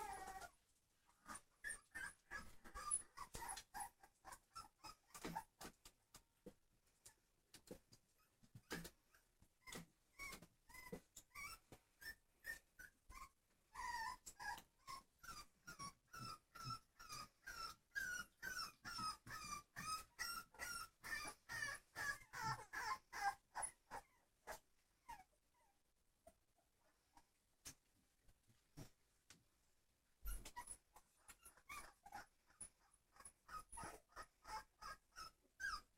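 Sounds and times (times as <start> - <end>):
puppy whimpering: 0.0 - 0.6, 1.2 - 5.7, 8.2 - 25.8, 30.3 - 35.9.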